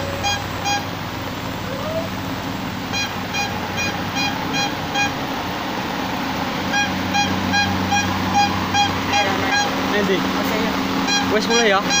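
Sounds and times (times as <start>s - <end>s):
vehicle warning beeper: 0.0s - 0.9s, 2.9s - 5.2s, 6.7s - 9.8s, 11.0s - 12.0s
diesel engine running: 0.0s - 12.0s.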